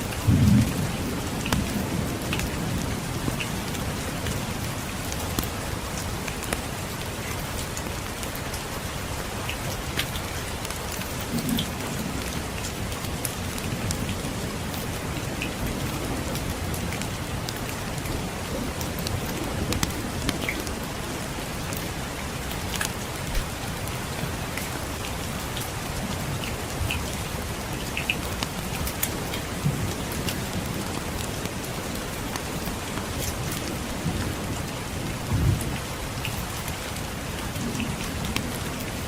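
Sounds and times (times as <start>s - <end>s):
steady rainfall: 0.0s - 39.0s
distant thunder rumble: 0.2s - 4.3s.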